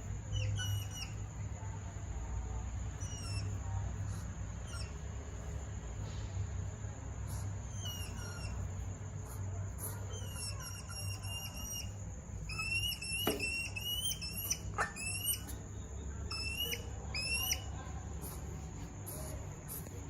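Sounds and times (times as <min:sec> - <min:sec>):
hedgehog high chirps: 0:07.3 - 0:08.7, 0:09.3 - 0:18.5.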